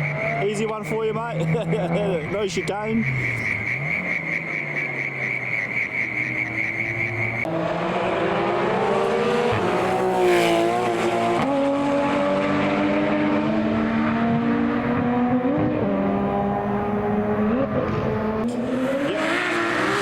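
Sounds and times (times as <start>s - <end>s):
rally car engine revving past: 7.4s - 20.0s.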